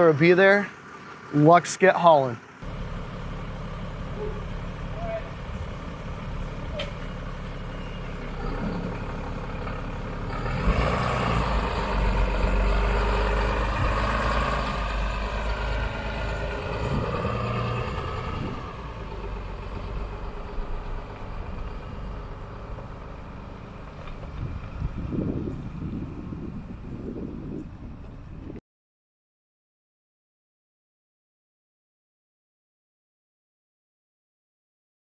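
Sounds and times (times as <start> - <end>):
truck engine and road noise: 0.0 - 28.6.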